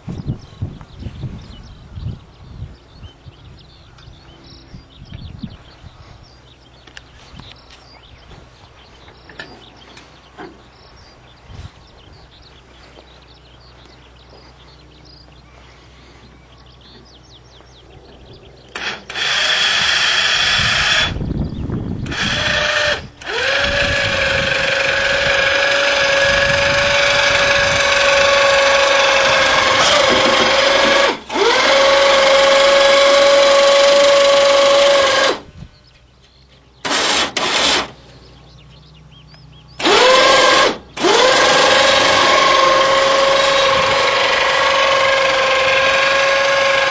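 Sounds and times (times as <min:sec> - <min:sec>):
small electric motor whining: 0:18.7 - 0:21.3, 0:21.9 - 0:35.5, 0:36.8 - 0:38.0, 0:39.8 - 0:46.9.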